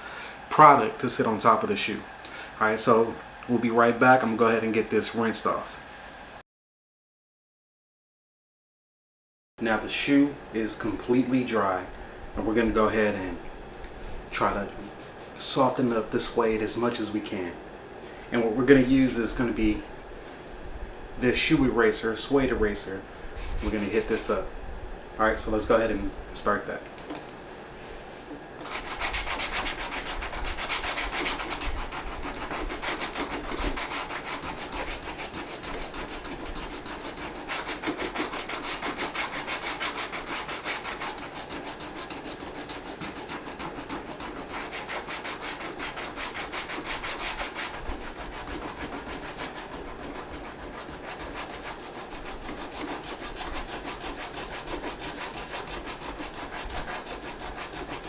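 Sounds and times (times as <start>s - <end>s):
eraser scrubbing suede: 23.4s - 24.4s, 28.6s - 58.0s.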